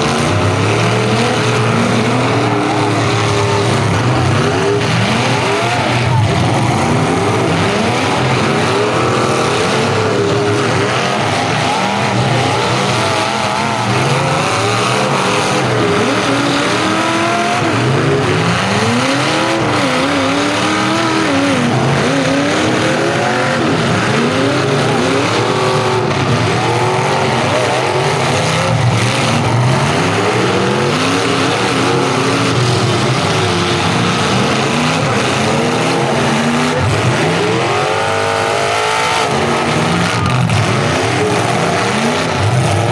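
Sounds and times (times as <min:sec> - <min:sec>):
car engines revving: 0:00.0 - 0:42.9.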